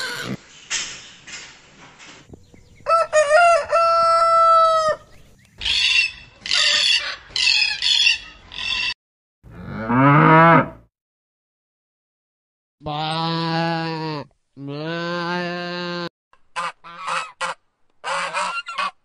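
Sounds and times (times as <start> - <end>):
cockatoo screeching: 0.0 - 0.4
rooster crowing: 2.8 - 5.1
buffalo mooing: 9.5 - 10.8.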